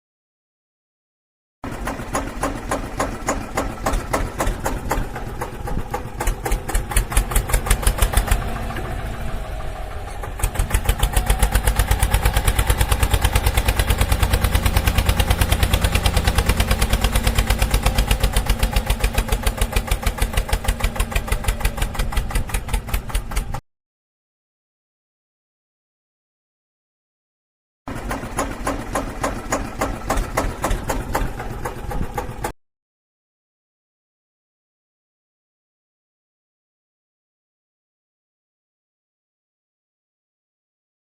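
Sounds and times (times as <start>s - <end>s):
engine fast thudding beat: 1.6s - 23.6s, 27.9s - 32.5s.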